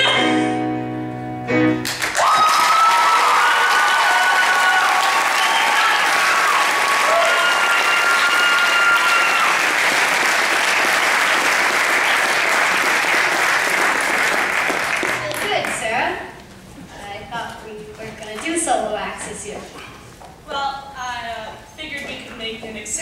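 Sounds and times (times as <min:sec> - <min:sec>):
audience applauding: 0:01.8 - 0:15.8
long held whoops: 0:02.2 - 0:09.6.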